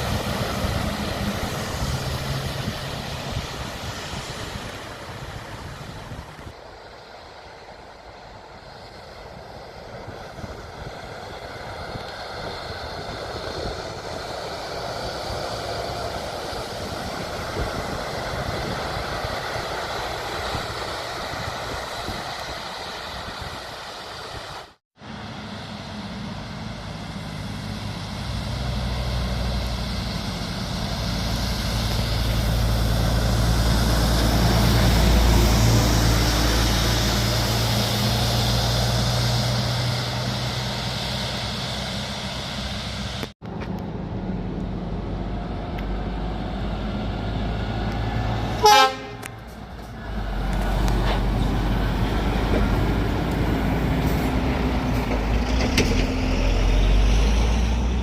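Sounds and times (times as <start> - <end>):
heavy trucks driving past: 0.0 - 58.0
truck horn toot: 48.5 - 49.5.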